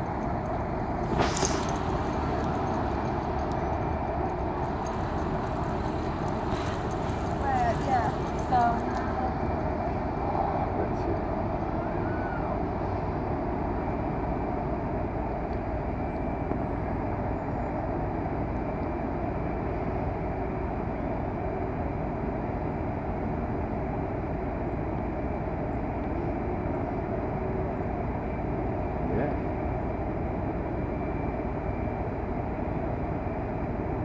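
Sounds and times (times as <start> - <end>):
blizzard wind buffeting microphone: 0.0 - 15.4.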